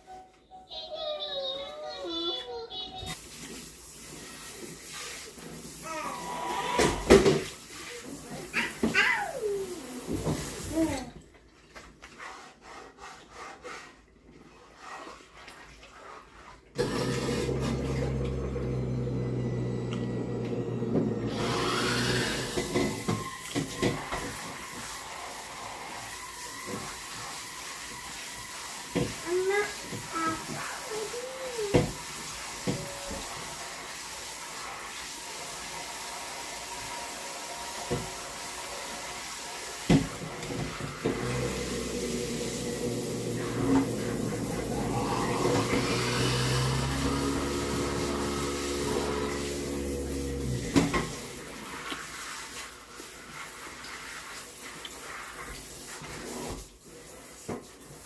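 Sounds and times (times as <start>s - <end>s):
kitchen appliance humming: 16.8s - 33.6s, 35.3s - 51.7s
low machine hum: 17.0s - 21.3s
hiss: 21.4s - 50.0s.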